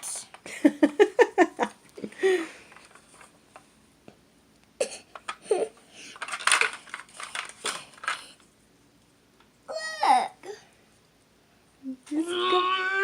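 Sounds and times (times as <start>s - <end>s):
plastic toy pieces clattering: 5.1s - 8.4s
young child vocal sounds: 9.7s - 10.6s, 12.0s - 13.0s.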